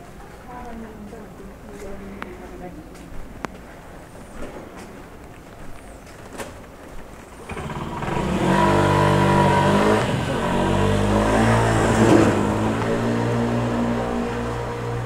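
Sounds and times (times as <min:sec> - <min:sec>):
vehicle engine running: 0:07.3 - 0:15.0.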